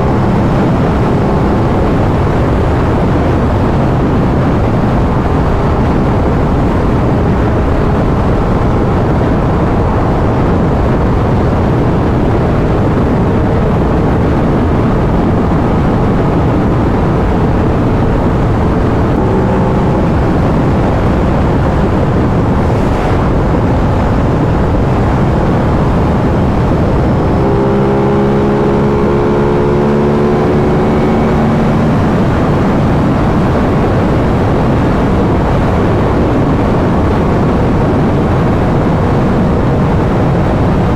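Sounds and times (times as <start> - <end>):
wind rush on microphone: 0.0 - 40.9
motorcycle engine cruising: 17.8 - 33.7.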